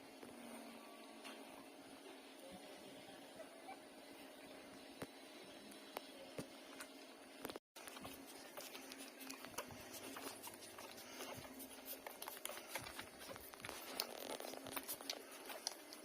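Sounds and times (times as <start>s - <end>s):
puppies suckling: 7.8s - 16.0s.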